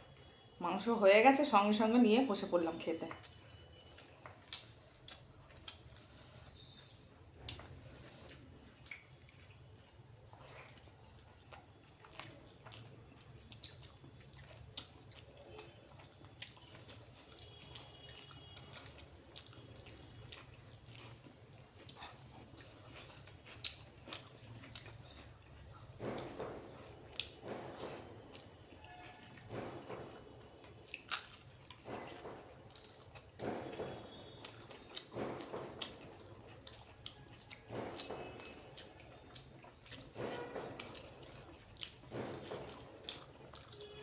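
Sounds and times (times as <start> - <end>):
wet chewing mouth smacks: 4.1 - 9.7.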